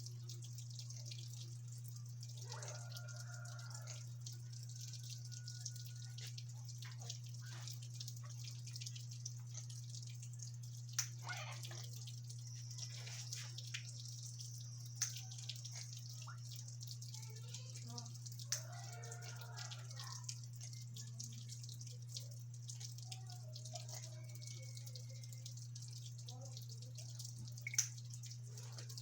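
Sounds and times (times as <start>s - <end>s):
low electrical hum: 0.0s - 29.0s
parrots calling softly: 11.2s - 11.9s.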